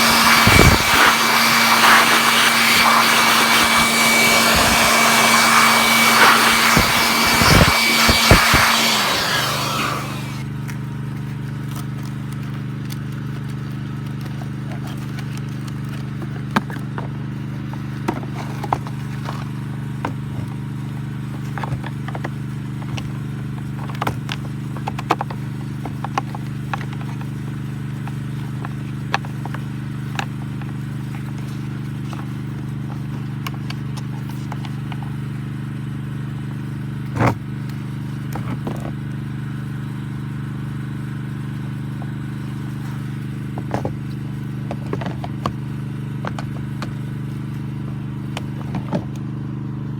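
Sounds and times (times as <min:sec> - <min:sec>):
handling clicks and knocks: 0:00.0 - 0:10.8, 0:11.6 - 0:35.4, 0:37.1 - 0:39.1, 0:41.6 - 0:49.2
moped engine idling: 0:15.4 - 0:49.9.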